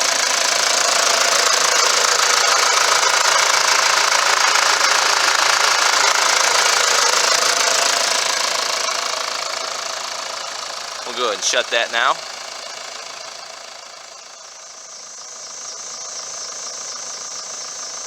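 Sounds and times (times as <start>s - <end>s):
truck diesel engine idling: 0.0s - 14.4s.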